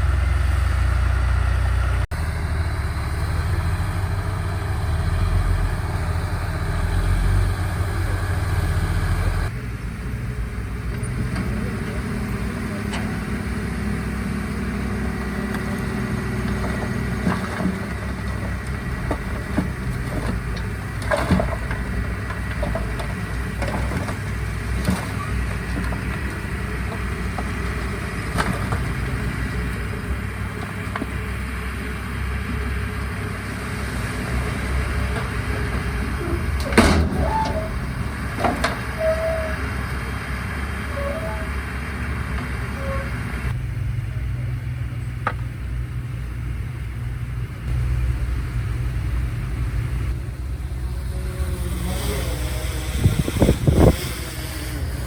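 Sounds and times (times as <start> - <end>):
diesel engines running: 0.0 - 55.0
metallic clanks: 10.8 - 31.3, 34.3 - 39.7.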